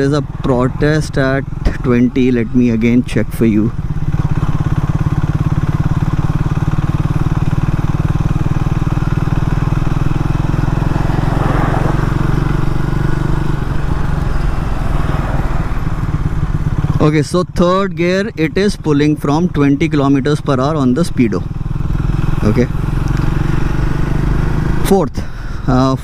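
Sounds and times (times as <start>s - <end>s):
motorcycle engine at low revs: 0.0s - 26.0s.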